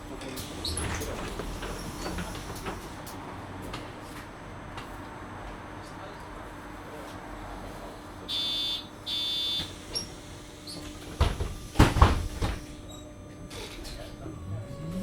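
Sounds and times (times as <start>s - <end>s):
bus doors shutting: 0.0s - 4.4s, 9.5s - 15.0s.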